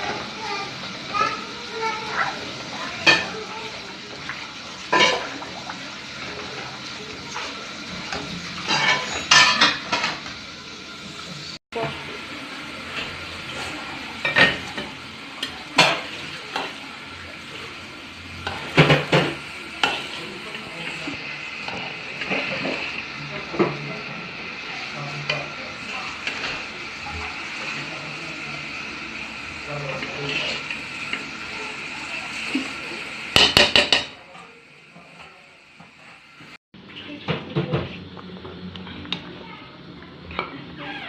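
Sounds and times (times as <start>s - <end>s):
frying hiss: 0.0s - 41.0s
spoon scraping a cooking pot: 30.0s - 30.8s.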